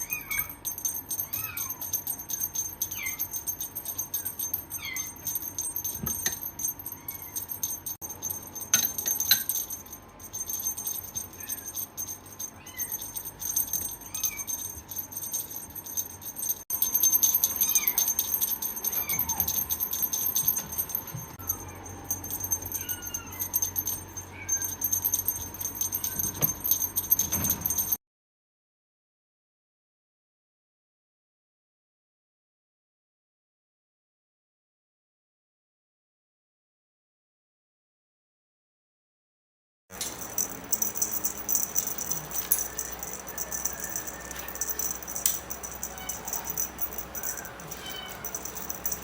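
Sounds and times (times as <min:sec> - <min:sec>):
small animal high-pitched calls: 0:00.0 - 0:00.6, 0:04.7 - 0:05.2, 0:17.4 - 0:18.2, 0:22.7 - 0:23.6, 0:45.8 - 0:49.0
fine jingling rattle: 0:00.0 - 0:28.0, 0:39.9 - 0:49.0.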